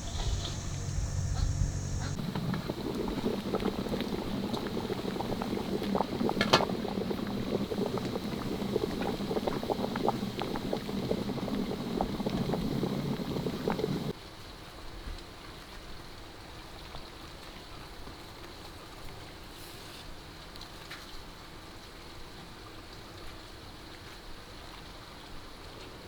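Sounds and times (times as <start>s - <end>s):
liquid boiling in a pot: 0.0s - 14.2s.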